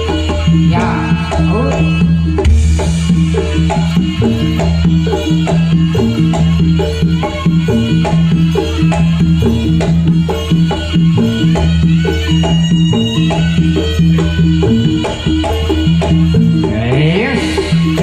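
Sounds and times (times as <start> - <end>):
percussion ensemble rhythm: 0.0 - 18.0.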